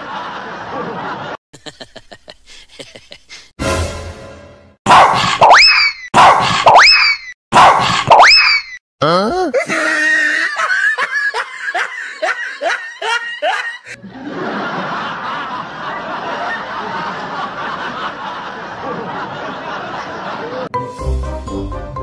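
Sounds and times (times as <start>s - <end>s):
crowd laughter: 0.0s - 3.5s, 9.6s - 20.7s
person snickering: 1.6s - 3.5s, 9.0s - 14.0s.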